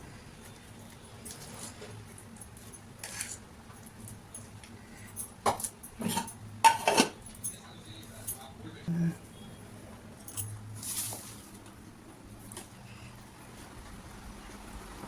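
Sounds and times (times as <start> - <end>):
utensils and dishes clinking: 1.2 - 8.5, 10.2 - 11.6.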